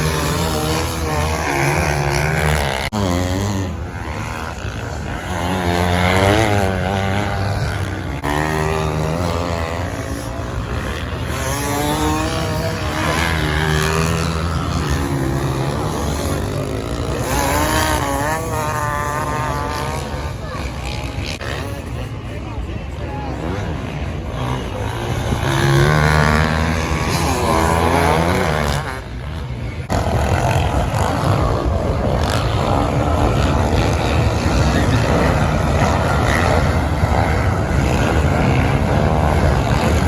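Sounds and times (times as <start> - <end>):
off-road engines revving: 0.0 - 40.0.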